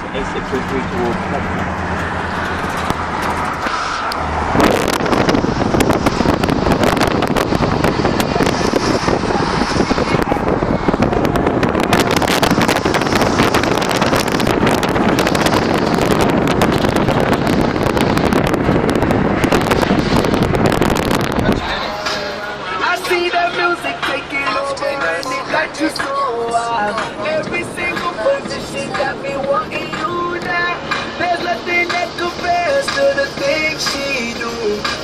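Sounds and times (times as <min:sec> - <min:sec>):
wind buffeting microphone: 0:00.0 - 0:22.5
car engine: 0:00.0 - 0:35.0
road noise: 0:00.0 - 0:35.0.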